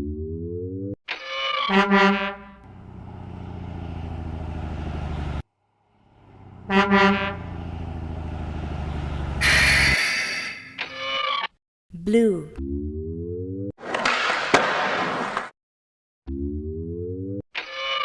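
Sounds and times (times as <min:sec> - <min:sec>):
truck horn honking: 0:01.7 - 0:02.8, 0:06.3 - 0:08.0, 0:09.2 - 0:10.7
truck engine rumbling: 0:02.4 - 0:10.8
loud air hiss: 0:09.4 - 0:10.5.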